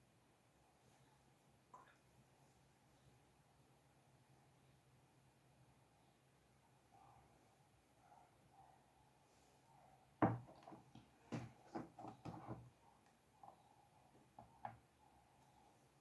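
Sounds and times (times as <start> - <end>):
light knocks and clatters: 10.2 - 12.8.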